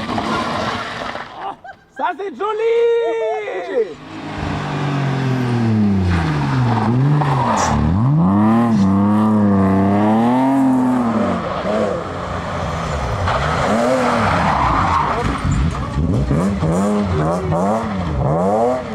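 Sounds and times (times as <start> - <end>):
rally car engine revving: 4.0 - 18.9.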